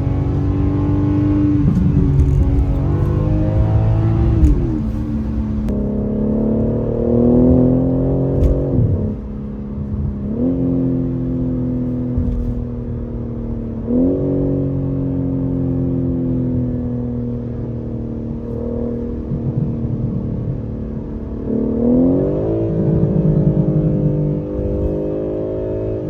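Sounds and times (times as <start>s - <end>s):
car engine and exhaust accelerating: 0.0s - 26.0s.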